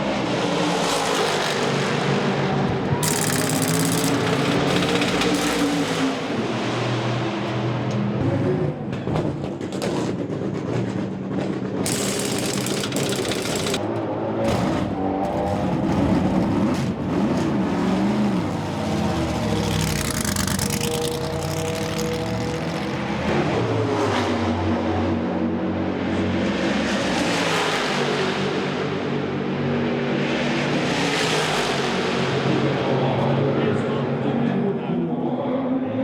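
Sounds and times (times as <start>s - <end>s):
race car engine revving: 0.2s - 7.3s, 11.5s - 13.8s, 14.5s - 24.5s.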